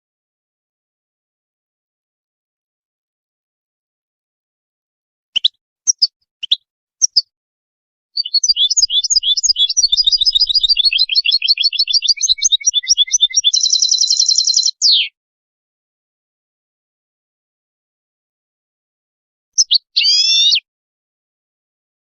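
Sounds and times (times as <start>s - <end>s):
finch singing: 5.4s - 7.3s, 8.2s - 15.2s, 19.6s - 20.6s.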